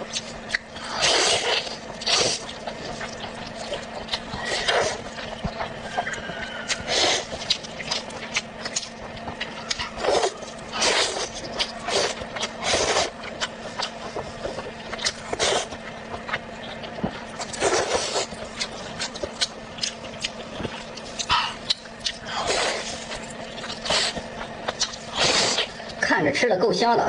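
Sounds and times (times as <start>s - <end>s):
chewing and crunching food: 0.0s - 26.1s
faint steady hum: 0.0s - 27.0s.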